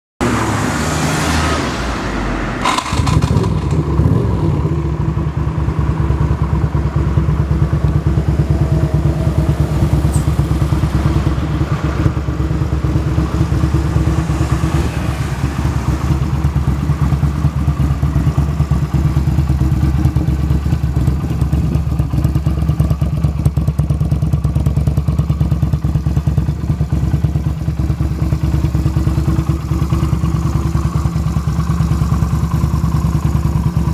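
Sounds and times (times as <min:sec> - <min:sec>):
car engine idling: 0:00.2 - 0:33.9
engine catching with a thump: 0:02.6 - 0:04.2.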